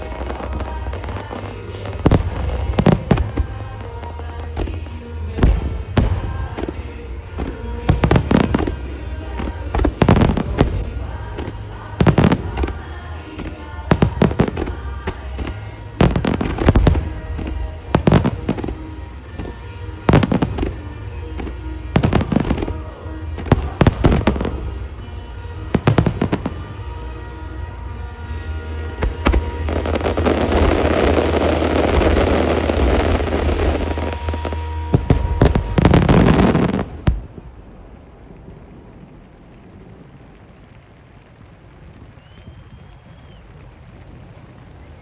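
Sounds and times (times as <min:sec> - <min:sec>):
pop song over loudspeakers: 0:00.0 - 0:34.1.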